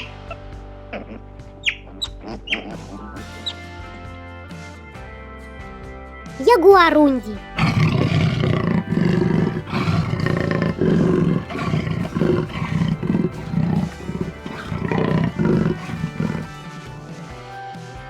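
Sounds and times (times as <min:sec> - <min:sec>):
background music: 0:06.4 - 0:16.6
wild cat growly calls: 0:07.6 - 0:16.5.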